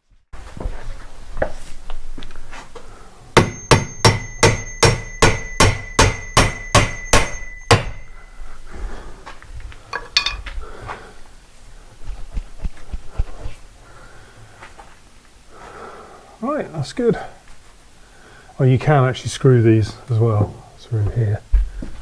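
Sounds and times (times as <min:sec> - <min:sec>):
hammer striking steel: 0:03.4 - 0:08.3, 0:10.0 - 0:10.4
handling noise and small knocks: 0:09.7 - 0:10.6.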